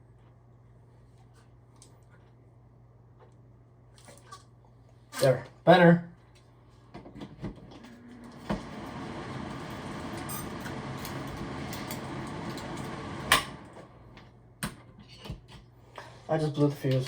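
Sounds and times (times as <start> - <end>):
exhaust fan whirring: 7.2 - 14.6.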